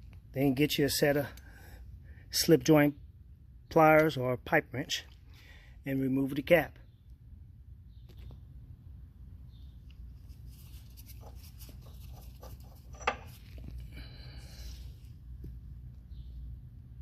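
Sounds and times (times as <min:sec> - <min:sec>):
steady low hum: 0:00.0 - 0:17.0
metal tool clicking and scraping: 0:12.4 - 0:13.5.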